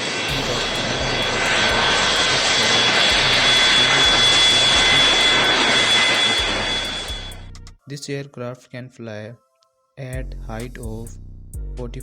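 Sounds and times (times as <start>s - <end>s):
jet engines running: 0.0s - 7.8s.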